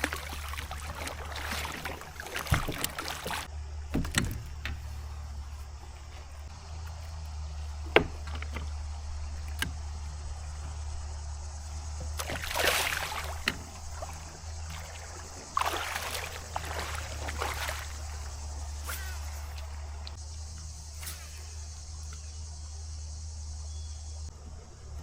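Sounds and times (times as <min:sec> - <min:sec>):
knocks against hull: 0:00.0 - 0:05.0, 0:07.8 - 0:08.8, 0:11.9 - 0:18.3
water splashing: 0:00.0 - 0:05.7, 0:07.8 - 0:20.2.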